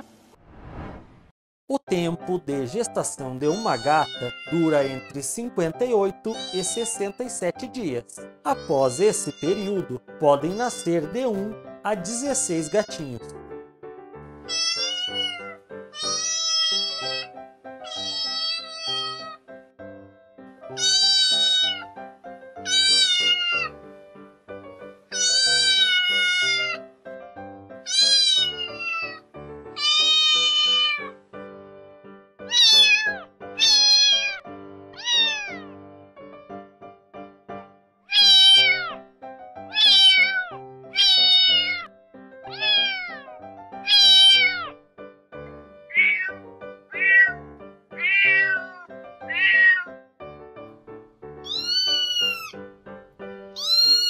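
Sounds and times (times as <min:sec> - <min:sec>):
background music: 0:01.7 - 0:54.0
kittens meowing: 0:03.5 - 0:05.1, 0:06.3 - 0:06.9, 0:08.5 - 0:09.9, 0:14.5 - 0:19.4, 0:20.8 - 0:22.0, 0:22.6 - 0:23.8, 0:25.1 - 0:26.9, 0:27.9 - 0:31.2, 0:32.5 - 0:35.7, 0:38.1 - 0:39.0, 0:39.7 - 0:41.9, 0:42.5 - 0:44.8, 0:45.9 - 0:47.4, 0:48.0 - 0:50.0, 0:51.4 - 0:52.6, 0:53.6 - 0:54.0.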